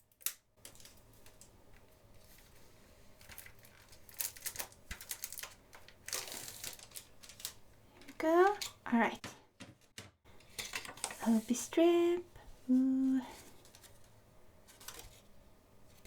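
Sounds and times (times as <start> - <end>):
plastic wrap crinkling: 0.6 - 8.6.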